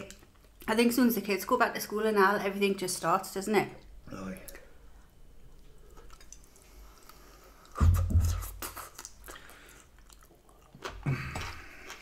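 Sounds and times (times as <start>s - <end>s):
wet clicking chews: 5.6s - 7.8s, 8.4s - 12.0s.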